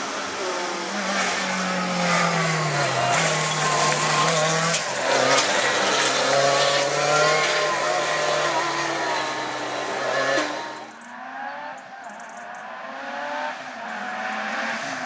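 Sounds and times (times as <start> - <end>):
rally car engine revving: 0.0 - 12.0, 12.6 - 15.0.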